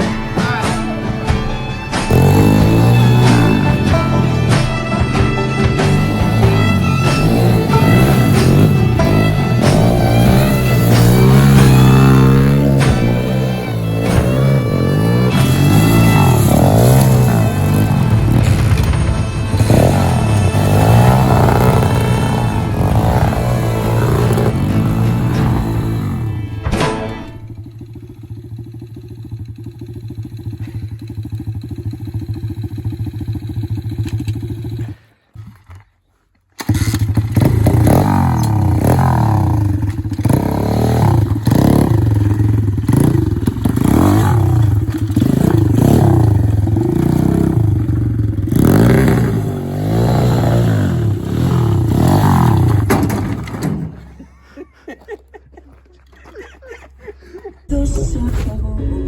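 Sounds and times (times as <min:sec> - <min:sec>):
pit bike engine idling and revving: 0:00.0 - 0:55.5.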